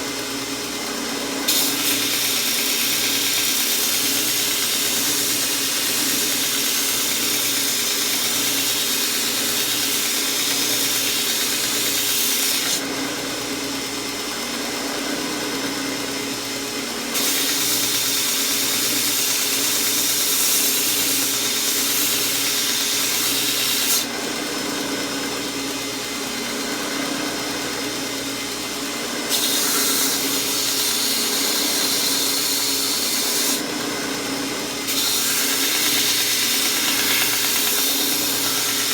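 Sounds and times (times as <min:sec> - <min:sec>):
grinder motor and belt running: 0:00.0 - 0:38.9
belt grinder grinding steel: 0:01.5 - 0:12.8, 0:17.2 - 0:24.1, 0:29.3 - 0:33.6, 0:34.8 - 0:38.9.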